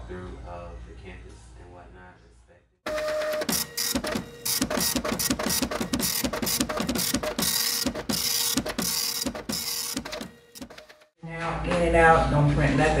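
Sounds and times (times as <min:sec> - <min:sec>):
printer mechanism strokes: 0:02.9 - 0:11.1
steady printer whine: 0:02.9 - 0:11.1.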